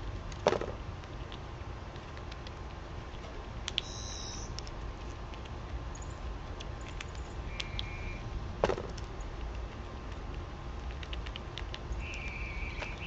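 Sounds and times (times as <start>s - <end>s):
steady low rumble: 0.0s - 13.0s
small clicks and taps: 0.3s - 3.9s
small birds chirping: 3.7s - 5.1s, 5.9s - 8.3s, 11.1s - 13.0s.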